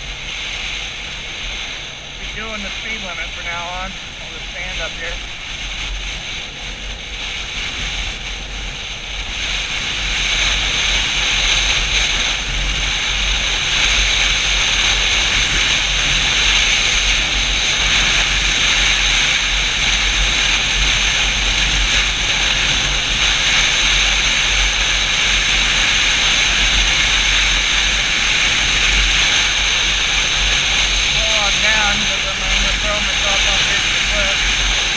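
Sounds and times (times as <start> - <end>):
motorcycle low rumble: 0.0 - 34.9
wind rushing over microphone: 0.0 - 34.9.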